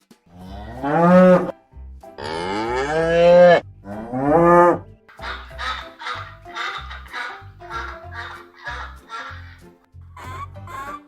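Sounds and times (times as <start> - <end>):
background music with low beat: 0.0 - 11.0
cow mooing: 0.4 - 1.5, 2.2 - 4.8.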